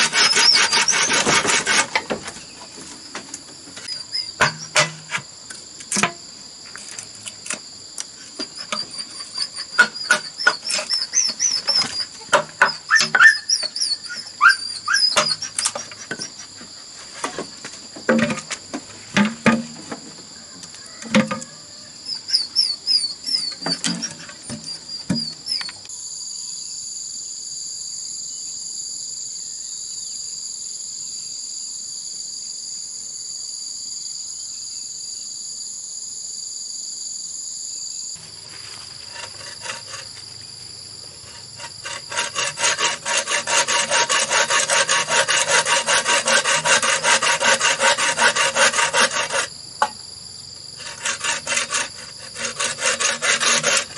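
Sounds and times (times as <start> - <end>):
hand tool rasping bamboo: 0.0 - 2.3, 3.8 - 5.3, 8.4 - 16.4, 18.1 - 19.8, 22.1 - 25.7, 38.5 - 40.2, 41.2 - 49.5, 50.8 - 53.9
insects droning: 0.0 - 53.9.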